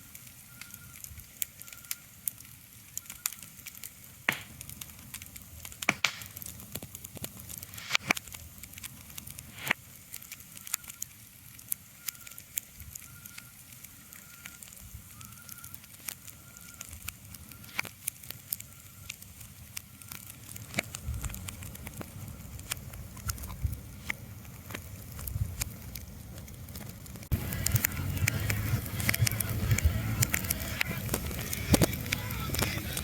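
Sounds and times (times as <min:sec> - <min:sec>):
soft hiss: 0:00.0 - 0:20.4
sharp crackles and pops: 0:00.0 - 0:33.0
faint thin whistling tone: 0:00.5 - 0:01.0, 0:12.0 - 0:12.4, 0:13.0 - 0:15.8, 0:16.4 - 0:17.8
low rumble: 0:26.7 - 0:33.0.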